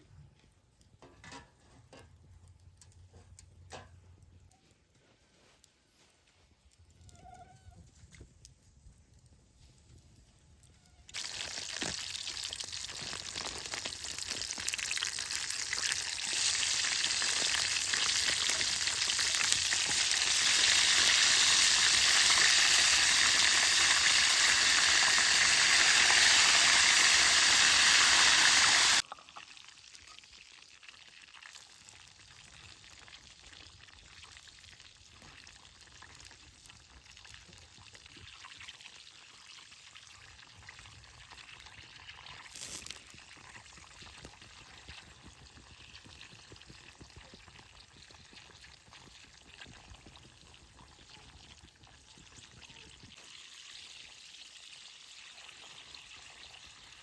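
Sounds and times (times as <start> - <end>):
food sizzling in a pan: 11.2 - 32.5.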